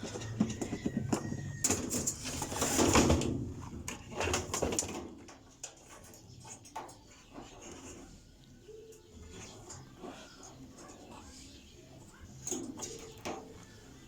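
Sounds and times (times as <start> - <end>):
plastic parts clicking and rattling: 0.0 - 7.9.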